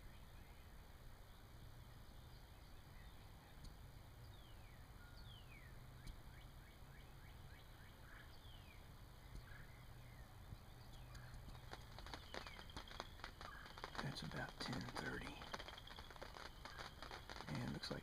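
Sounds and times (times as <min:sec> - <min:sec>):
raindrops pattering on ground: 0:07.3 - 0:18.0.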